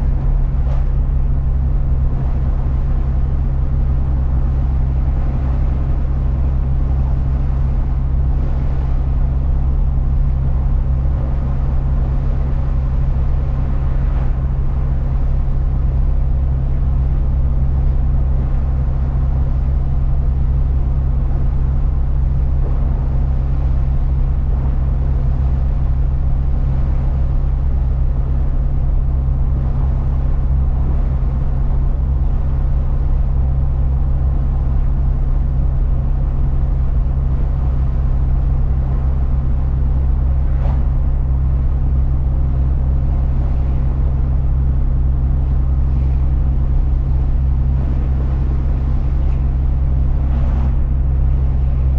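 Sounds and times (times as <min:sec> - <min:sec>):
road noise: 0:00.0 - 0:02.3.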